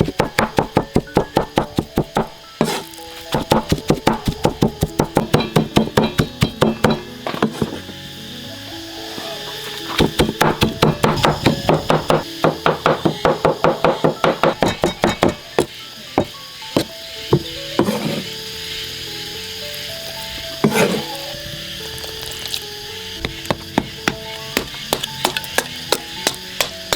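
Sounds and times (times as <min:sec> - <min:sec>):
cleaver chopping on wooden board: 0:00.0 - 0:07.7, 0:10.0 - 0:16.3, 0:23.2 - 0:26.9
background music: 0:00.0 - 0:26.9.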